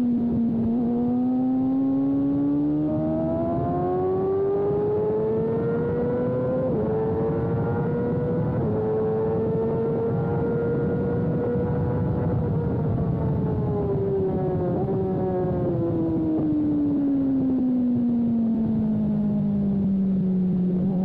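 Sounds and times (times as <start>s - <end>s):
motorcycle engine revving: 0.1s - 12.7s
rushing wind: 2.9s - 21.0s.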